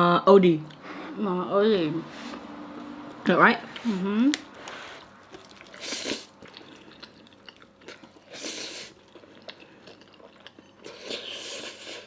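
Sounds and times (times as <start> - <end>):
chewing and biting food: 2.7 - 12.0.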